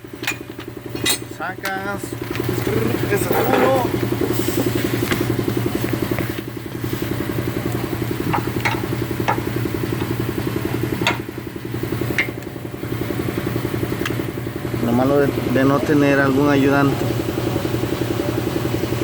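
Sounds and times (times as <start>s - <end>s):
motor droning: 0.0s - 19.0s.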